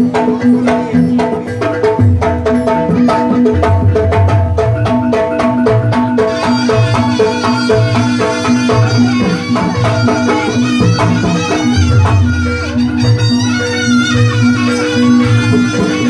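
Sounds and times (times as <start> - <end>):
drums beating: 0.0 - 16.0
shrill reed pipe melody: 6.1 - 16.0.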